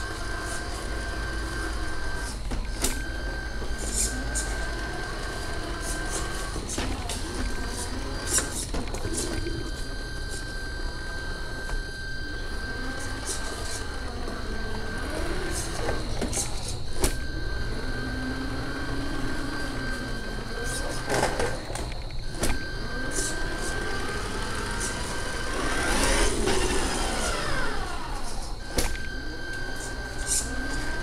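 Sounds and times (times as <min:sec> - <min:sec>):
toy truck motor running: 0:00.0 - 0:31.0.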